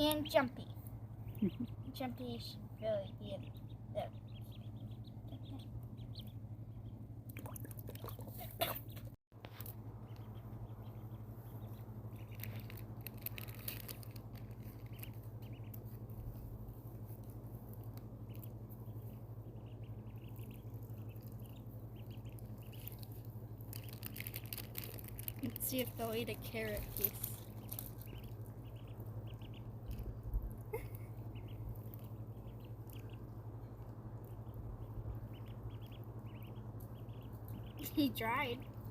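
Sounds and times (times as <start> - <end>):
ducklings peeping: 0.0 - 38.9
steady low hum: 0.0 - 38.9
small water splashes: 7.3 - 8.4.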